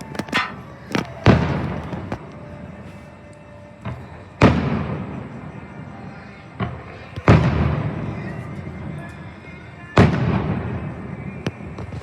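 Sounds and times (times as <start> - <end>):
fireworks bangs: 0.0 - 2.2.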